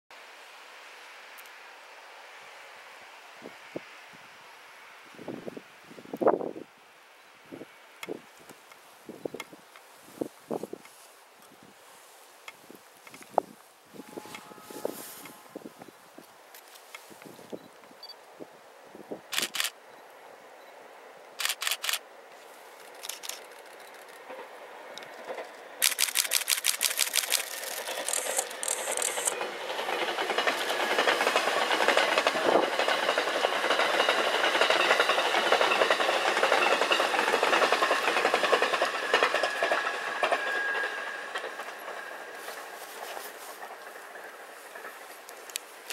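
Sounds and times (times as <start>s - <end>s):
train wheels rushing on rail: 7.6s - 17.7s, 19.0s - 45.9s
camera shutters clicking: 19.3s - 19.8s, 21.4s - 22.0s, 22.8s - 24.1s, 25.8s - 29.3s.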